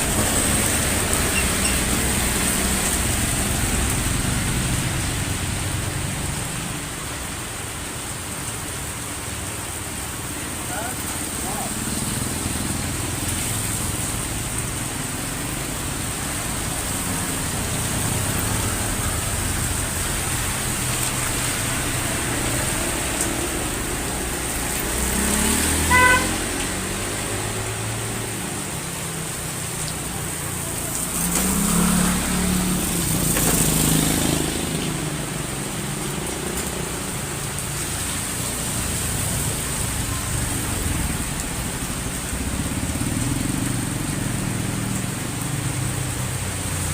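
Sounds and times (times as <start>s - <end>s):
heavy rain: 0.0s - 46.9s
vehicles passing: 0.0s - 46.9s
car horn toot: 25.9s - 26.4s.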